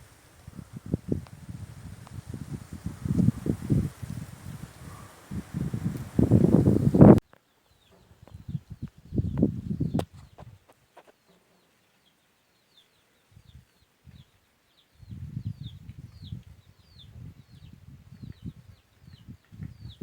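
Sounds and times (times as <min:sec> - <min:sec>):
small bird chirping: 0:04.4 - 0:20.0.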